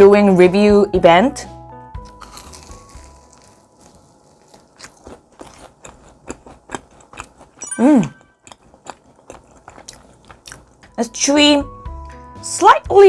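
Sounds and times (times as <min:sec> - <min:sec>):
crunchy chewing: 0:02.0 - 0:07.6, 0:08.4 - 0:10.9.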